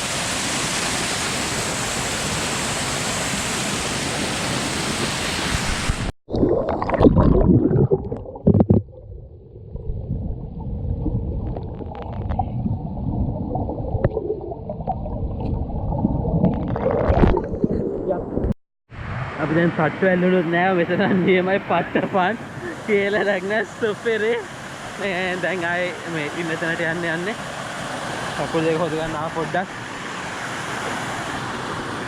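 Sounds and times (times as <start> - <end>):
muffled water sound: 0.5 - 20.0
knocks and splashes: 4.9 - 9.2, 11.1 - 18.6.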